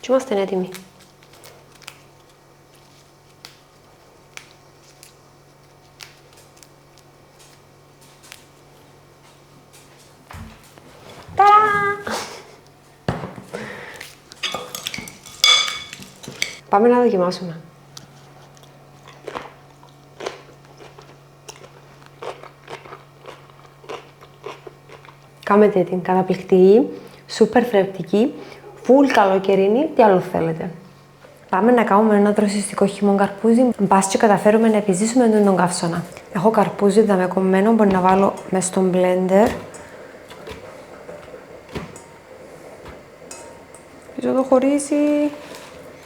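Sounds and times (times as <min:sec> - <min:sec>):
steady low hum: 0:00.0 - 0:46.0
kitchen clicks and taps: 0:14.3 - 0:16.6
person chewing crunchy food: 0:18.4 - 0:25.4.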